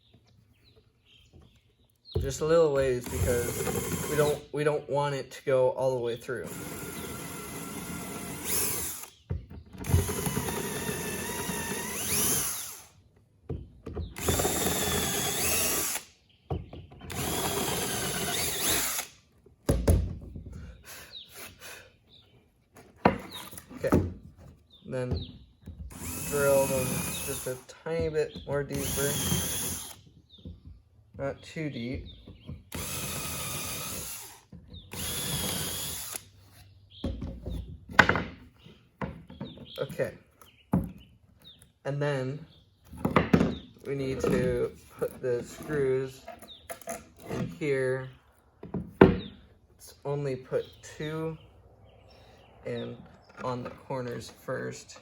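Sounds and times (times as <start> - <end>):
power drill boring into wood: 2.8 - 4.5, 6.4 - 9.2, 9.8 - 13.0, 14.1 - 16.1, 17.0 - 19.2, 25.9 - 27.7, 28.6 - 30.1, 32.7 - 36.4.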